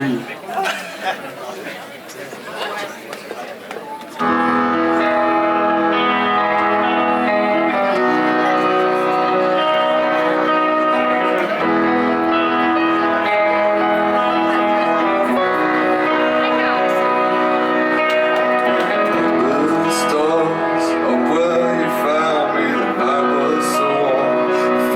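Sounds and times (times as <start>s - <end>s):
crowd chatter: 0.0s - 24.9s
live rock band playing: 4.2s - 24.9s.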